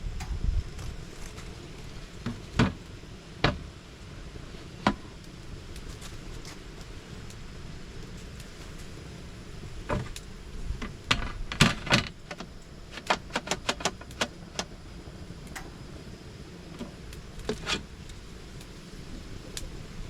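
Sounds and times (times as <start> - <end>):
camping gear clicks and knocks: 9.9 - 14.8, 16.8 - 17.9.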